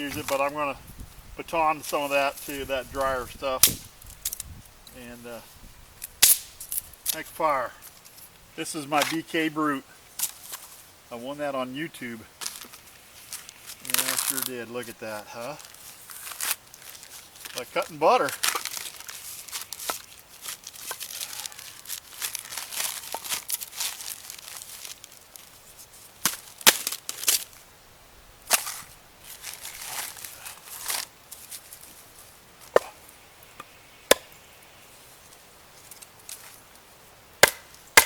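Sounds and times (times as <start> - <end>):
wood crackling and splitting: 12.4 - 27.6, 28.4 - 34.5, 35.1 - 38.0
knife blade struck through wood: 37.4 - 38.0.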